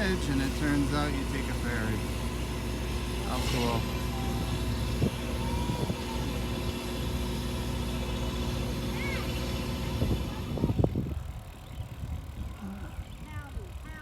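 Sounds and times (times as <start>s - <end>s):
ferry engine droning: 0.0s - 14.0s.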